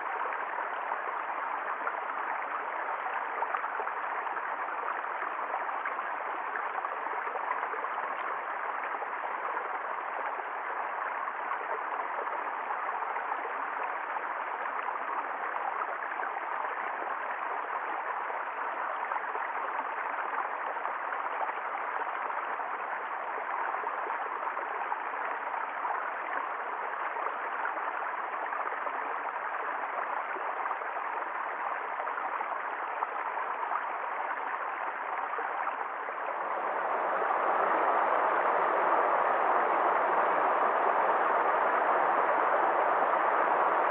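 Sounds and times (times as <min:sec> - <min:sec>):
stream rushing and gurgling: 0:31.2 - 0:43.9.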